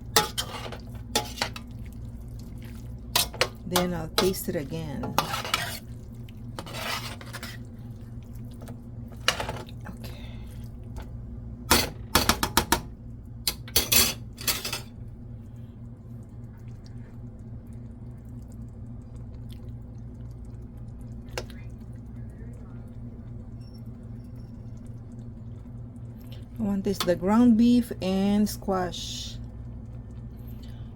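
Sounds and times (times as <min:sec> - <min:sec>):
steady low hum: 0:00.0 - 0:30.9
spoon scraping cooking pot: 0:00.1 - 0:01.7, 0:03.2 - 0:05.9, 0:06.6 - 0:07.7.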